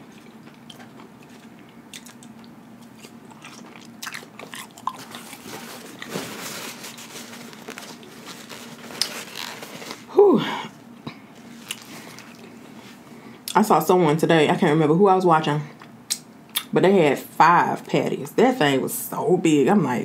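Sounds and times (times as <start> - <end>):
chewing fries: 0.0 - 10.1, 11.6 - 12.8.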